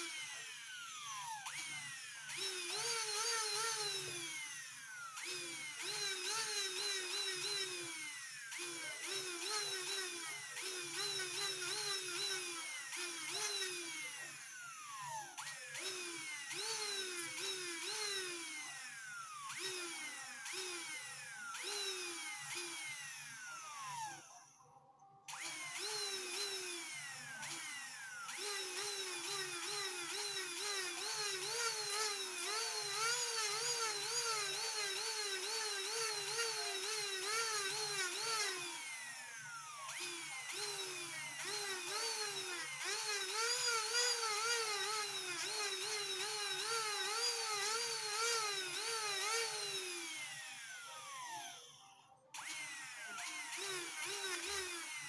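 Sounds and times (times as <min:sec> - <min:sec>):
high-speed rotary tool: 0:00.0 - 0:24.6, 0:25.3 - 0:55.0.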